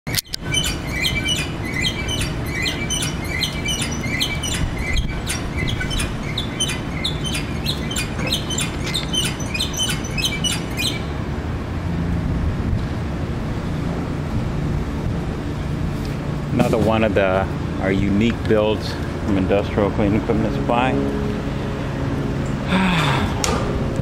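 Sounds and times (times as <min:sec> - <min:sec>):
bird chirping: 0:00.2 - 0:11.1
steady low rumble: 0:00.2 - 0:24.0.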